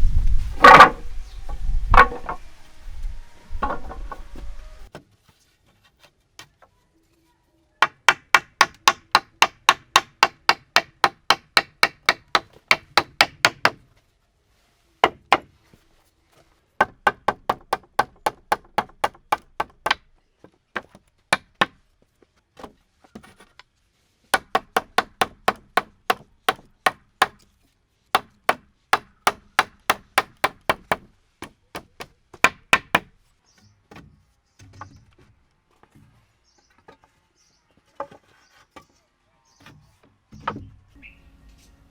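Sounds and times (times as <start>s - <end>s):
hand tool striking wood: 0.6s - 1.1s, 1.9s - 2.5s, 3.6s - 5.0s, 7.8s - 13.8s, 15.0s - 15.5s, 16.8s - 20.0s, 24.3s - 27.4s, 28.2s - 33.1s.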